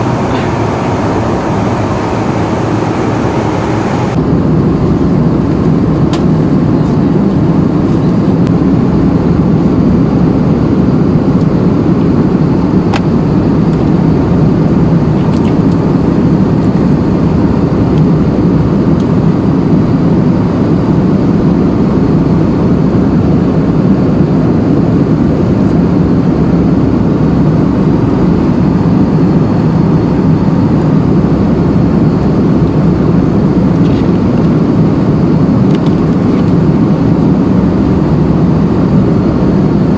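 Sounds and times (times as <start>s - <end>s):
vehicle rumble in motion: 0.0s - 19.8s, 30.7s - 39.9s.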